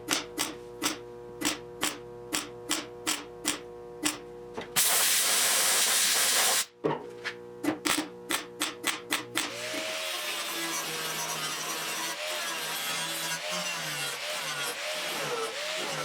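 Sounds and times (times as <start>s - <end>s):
welder hissing burst: 4.8s - 6.7s.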